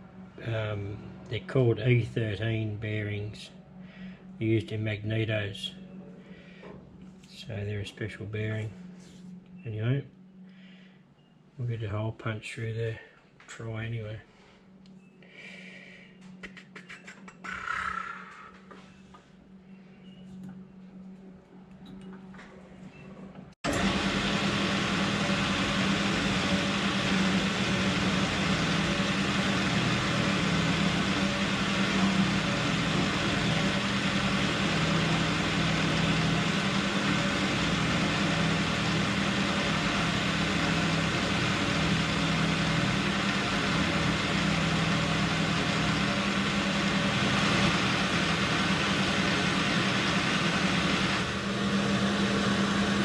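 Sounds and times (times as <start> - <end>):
metal lathe drilling steel: 23.7 - 53.0.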